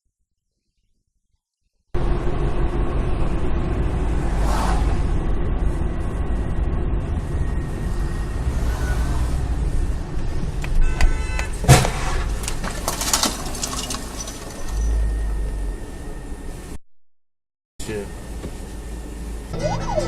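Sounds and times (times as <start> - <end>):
vehicle engine and road rumble: 2.0 - 16.8, 17.8 - 20.0
brief whoosh: 4.2 - 5.3.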